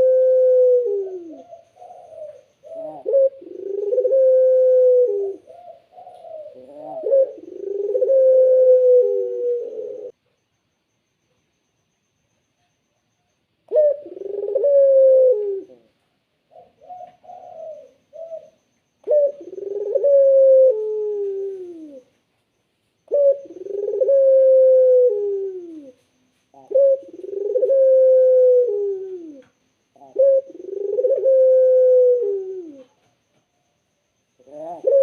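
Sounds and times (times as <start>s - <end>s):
dove cooing: 0.0s - 10.2s, 13.7s - 22.2s, 23.1s - 33.2s, 34.4s - 35.0s.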